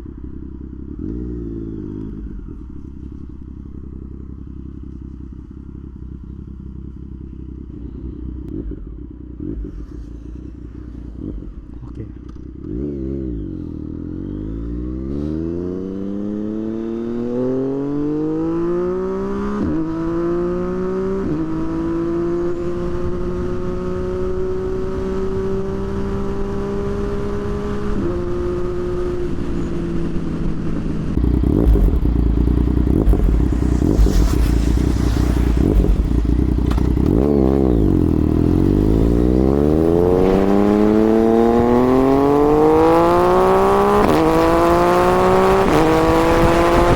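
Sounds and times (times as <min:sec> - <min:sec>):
motorcycle engine accelerating: 0:00.0 - 0:46.9
heavy wind rumble: 0:22.6 - 0:46.9.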